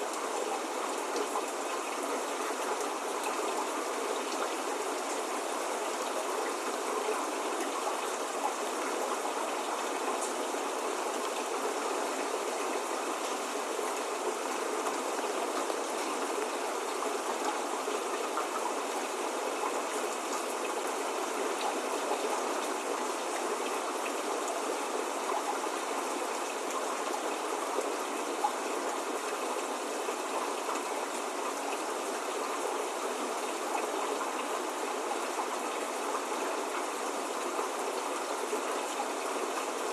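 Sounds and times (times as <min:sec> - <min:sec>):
steady rain falling: 0:00.0 - 0:39.9
faint raindrop ticks: 0:10.1 - 0:10.5.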